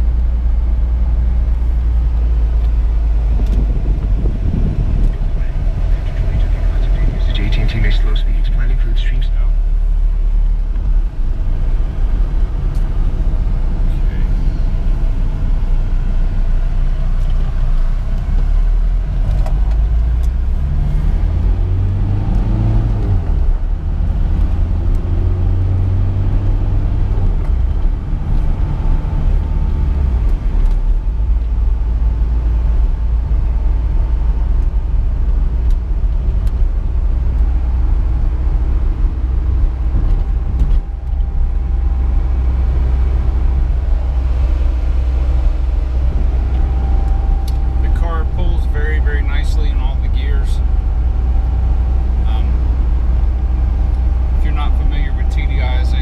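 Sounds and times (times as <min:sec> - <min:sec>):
diesel car engine: 0:00.0 - 0:56.0
road noise: 0:00.0 - 0:56.0.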